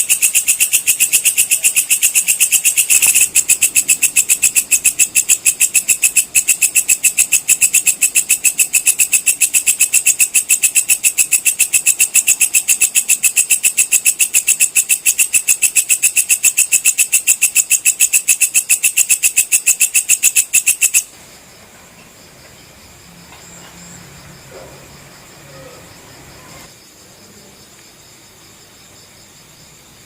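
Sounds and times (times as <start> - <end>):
insect chirping loudly: 0.0 - 30.0.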